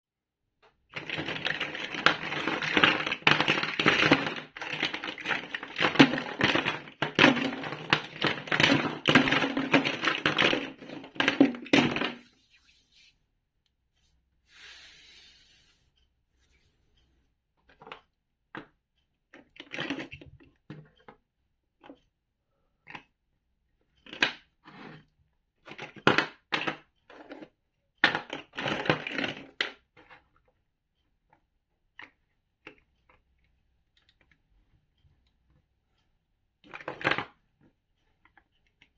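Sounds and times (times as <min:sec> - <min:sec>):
plastic bricks clicking and clattering: 0:01.0 - 0:12.3, 0:19.6 - 0:20.3, 0:25.7 - 0:27.4, 0:28.0 - 0:29.8, 0:36.7 - 0:37.3.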